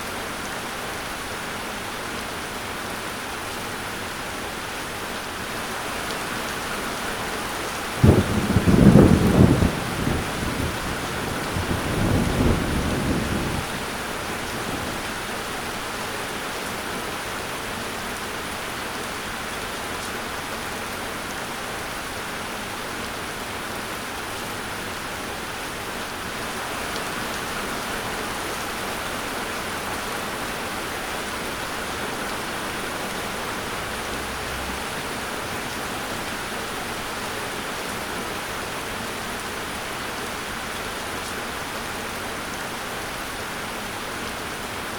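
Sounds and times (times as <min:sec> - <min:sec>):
heavy rain: 0:00.0 - 0:44.9
thunder rumbling: 0:08.0 - 0:15.2.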